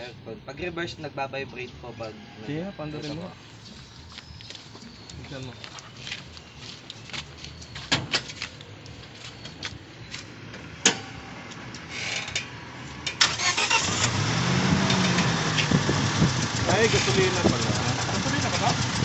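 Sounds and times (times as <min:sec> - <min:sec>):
car engine starting and misfiring: 0:10.7 - 0:19.0.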